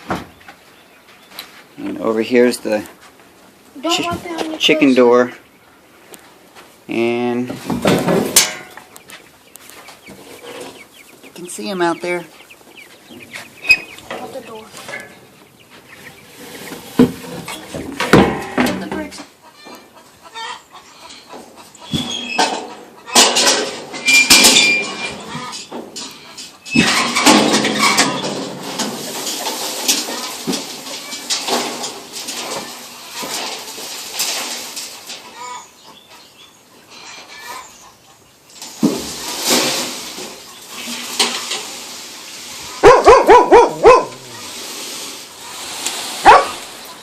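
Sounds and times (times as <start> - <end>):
soft rustling: 7.5 - 18.0
dog barking: 42.8 - 44.2, 46.2 - 46.6.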